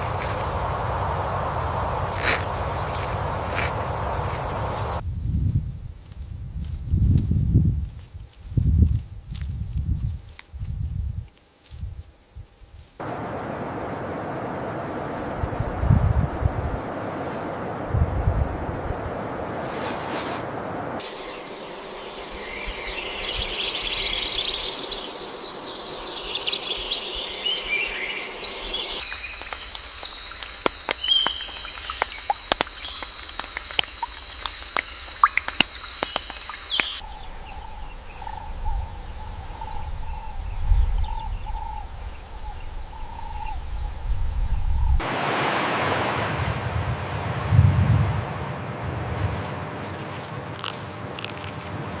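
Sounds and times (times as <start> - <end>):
high insect drone: 0.0 - 5.0, 12.8 - 17.9, 20.5 - 45.0
rushing noise: 13.0 - 21.3, 45.0 - 52.0
birds singing: 21.0 - 45.0.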